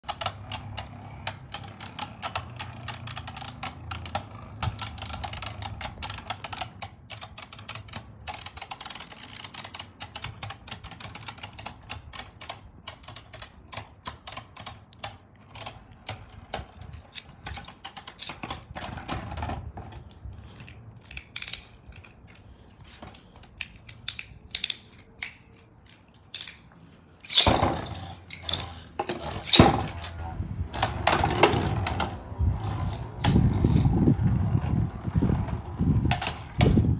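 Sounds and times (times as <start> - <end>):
spinning tops clicking: 0.0 - 16.3, 23.5 - 30.2.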